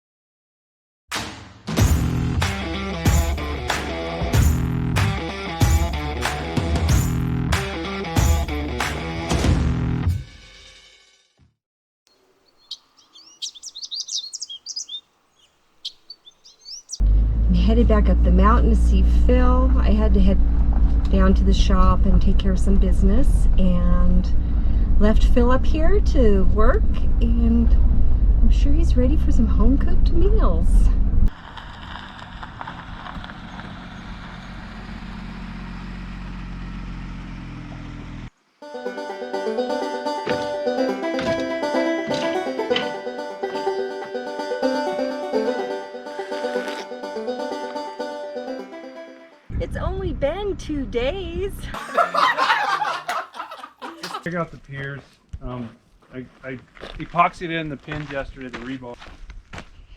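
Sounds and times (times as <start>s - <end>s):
music: 1.2s - 11.4s, 38.6s - 49.6s
small birds chirping: 12.1s - 17.0s
road noise: 12.2s - 51.4s
vehicle engine low hum: 16.8s - 38.5s.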